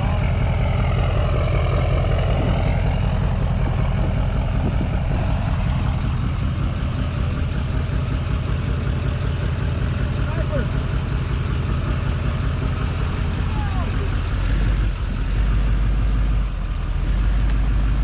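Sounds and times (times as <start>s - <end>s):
engine and road noise: 0.0s - 18.0s
wind buffeting microphone: 1.0s - 8.8s.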